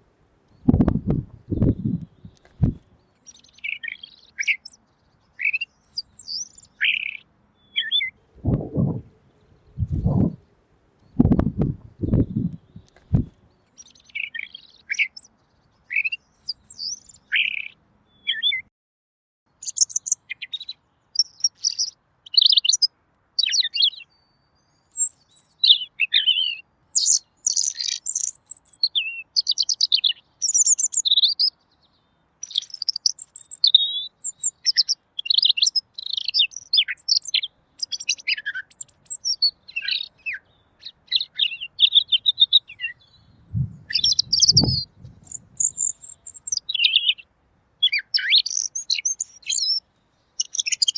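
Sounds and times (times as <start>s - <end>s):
low thump: 0.7s - 2.0s, 2.6s - 2.8s, 11.2s - 13.3s
bird singing whistled phrases: 3.2s - 4.8s, 5.4s - 9.0s, 13.8s - 15.3s, 15.9s - 18.6s, 24.8s - 31.4s, 32.4s - 40.4s, 41.1s - 47.2s, 47.8s - 49.8s, 50.4s - 50.9s.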